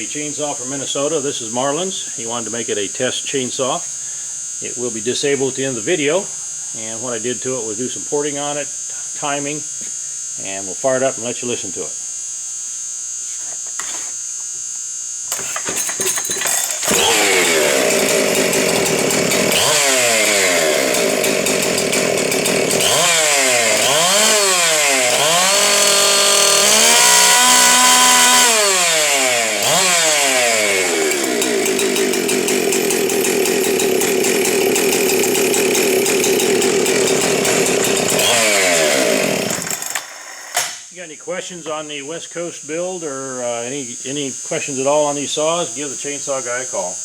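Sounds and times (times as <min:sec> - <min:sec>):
chainsaw revving: 0:15.3 - 0:40.9.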